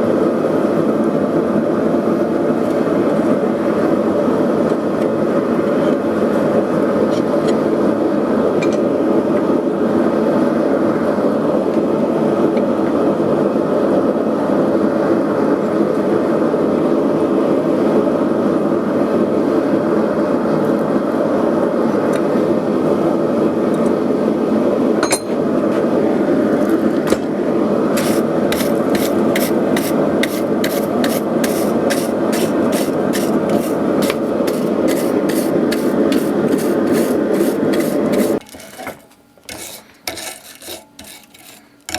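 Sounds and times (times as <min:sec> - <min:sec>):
gas forge roaring: 0:16.5 - 0:41.9
metal-on-metal strokes: 0:28.0 - 0:41.9.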